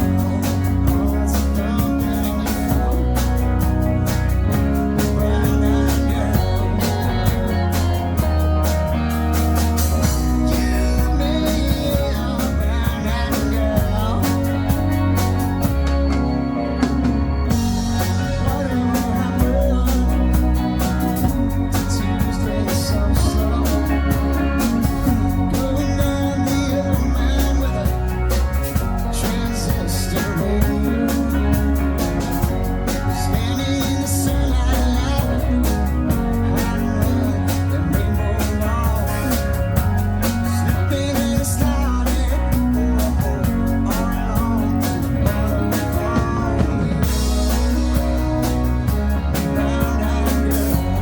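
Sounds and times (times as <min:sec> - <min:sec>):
person singing: 0:00.0 - 0:03.7, 0:04.4 - 0:16.2, 0:17.4 - 0:51.0
rock band playing: 0:00.0 - 0:51.0.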